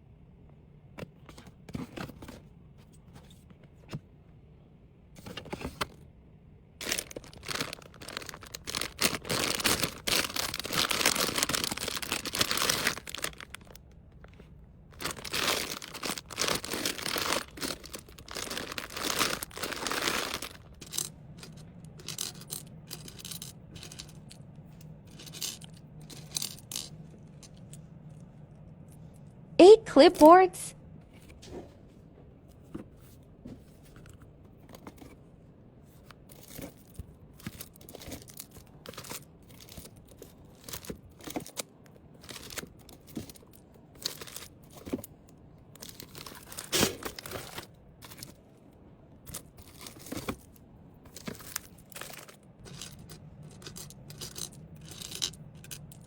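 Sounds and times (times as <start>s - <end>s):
plastic packaging crinkling: 6.8s - 24.4s, 42.2s - 45.0s, 45.8s - 48.4s, 49.3s - 56.0s.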